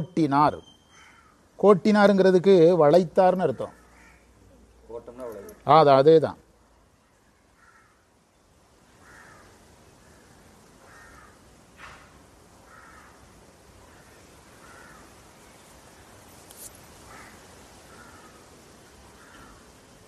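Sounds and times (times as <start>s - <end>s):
faint bird calls: 0.6s - 1.5s, 3.6s - 5.6s, 7.0s - 8.1s, 9.0s - 16.3s, 17.0s - 20.0s.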